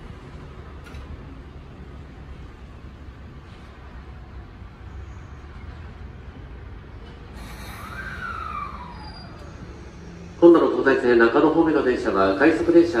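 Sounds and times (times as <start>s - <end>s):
train humming: 0.0s - 13.0s
hiss: 7.3s - 10.4s.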